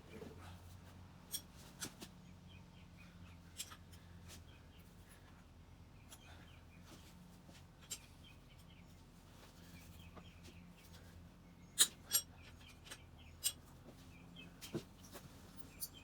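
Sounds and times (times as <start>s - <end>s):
hand tools clicking on metal: 11.8s - 13.6s.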